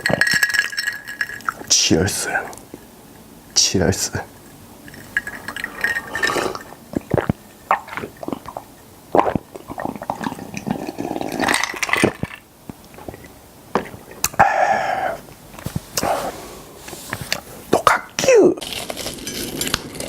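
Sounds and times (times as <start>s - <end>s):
sipping: 4.2s - 18.6s
wet mouth eating sounds: 5.4s - 16.3s
mouth smacks and clicks: 6.3s - 11.3s, 12.0s - 16.2s.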